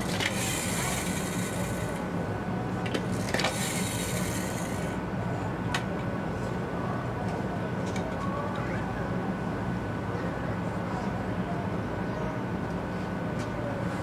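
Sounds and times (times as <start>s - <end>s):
train running rumble: 0.0s - 6.7s.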